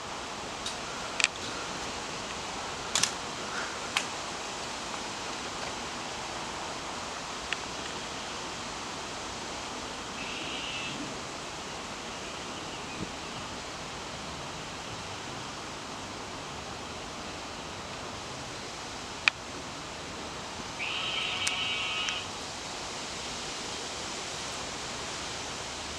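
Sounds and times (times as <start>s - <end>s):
outdoor background hiss: 0.0s - 25.9s
sharp clicks: 2.9s - 3.2s.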